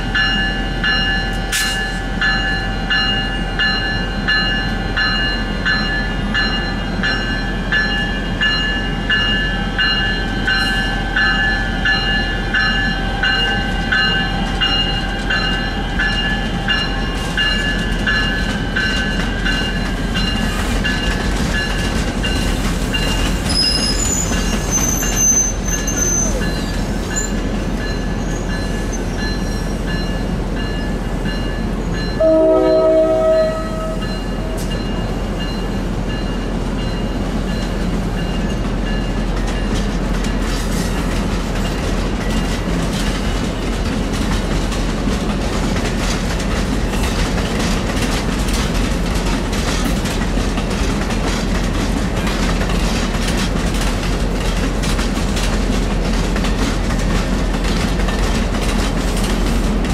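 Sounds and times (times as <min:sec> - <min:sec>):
locomotive bell ringing: 0:00.0 - 0:24.2, 0:24.8 - 0:40.5
train rolling past: 0:00.0 - 0:59.9
high wheel squeal: 0:23.5 - 0:27.4
train horn blast: 0:32.2 - 0:34.7.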